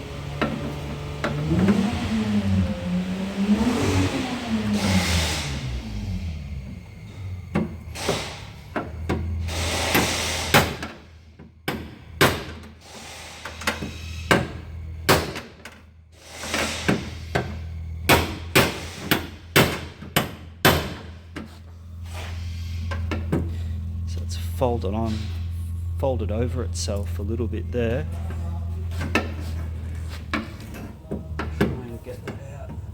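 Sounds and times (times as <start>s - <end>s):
steady low hum: 16.0s - 32.9s.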